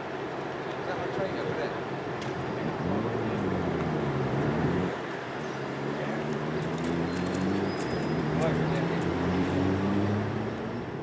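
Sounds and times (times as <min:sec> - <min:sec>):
general rumble: 0:00.4 - 0:09.3.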